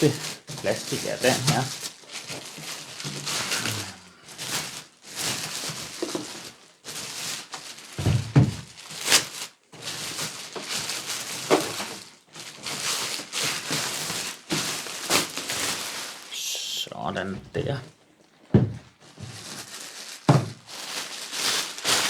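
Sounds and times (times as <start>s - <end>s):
plastic wrapping rustling: 0.0s - 22.0s
thump: 8.0s - 8.6s, 18.5s - 18.8s.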